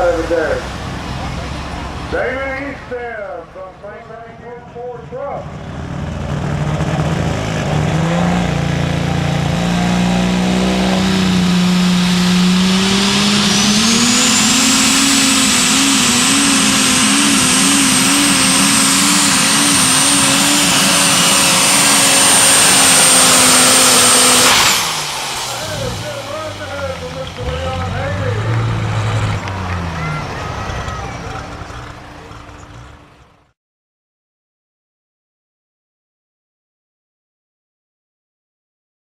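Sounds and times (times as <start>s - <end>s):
tractor engine at full power: 0.0s - 33.5s
turbocharger whine: 3.5s - 33.5s.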